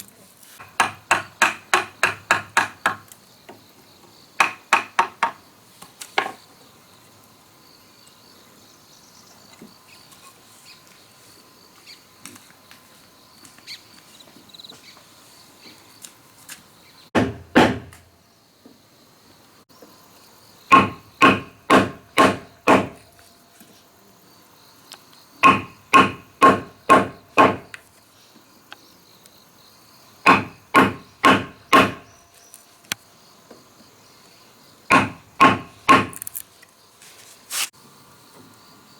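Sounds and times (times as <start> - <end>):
hand tool striking wood: 0.6 - 3.1, 4.4 - 5.4, 17.2 - 18.1, 20.7 - 23.1, 25.4 - 27.8, 30.3 - 32.1, 34.9 - 36.4.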